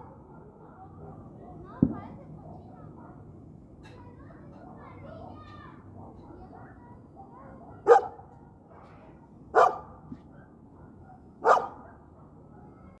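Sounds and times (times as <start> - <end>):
dog barking: 6.1 - 8.3, 9.6 - 12.4.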